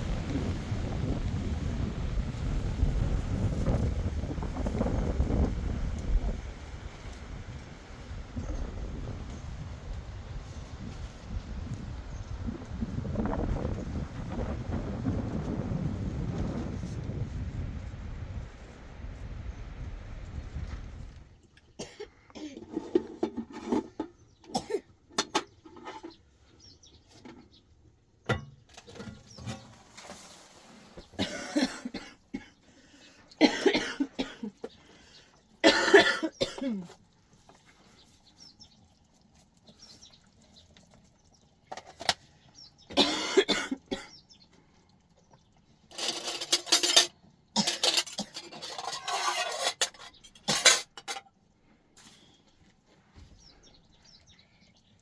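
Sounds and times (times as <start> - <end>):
woman coughing: 21.8 - 22.6, 31.2 - 32.5, 33.4 - 34.5, 35.6 - 36.9, 42.9 - 44.1.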